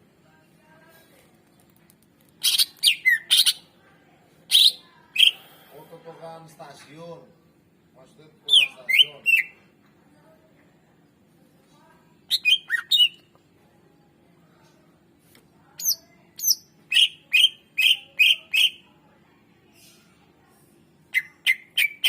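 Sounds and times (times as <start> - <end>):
faint low hum: 5.2 - 12.3, 13.1 - 16.8.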